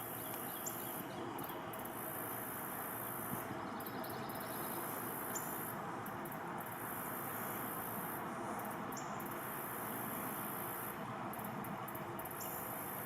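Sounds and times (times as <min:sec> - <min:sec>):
background hiss: 0:00.0 - 0:13.0
insects trilling: 0:00.0 - 0:13.0.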